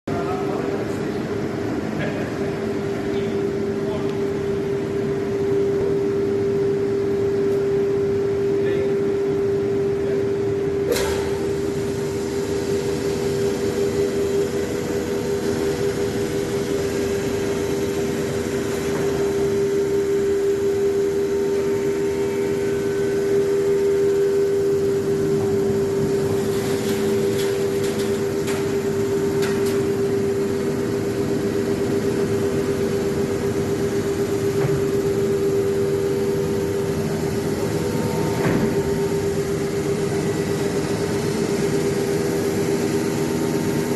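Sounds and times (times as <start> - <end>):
router machine humming: 11.0 - 43.9.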